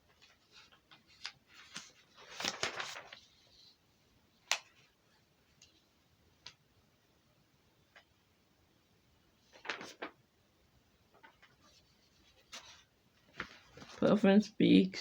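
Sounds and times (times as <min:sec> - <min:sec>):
handling rustle: 0:00.1 - 0:03.5.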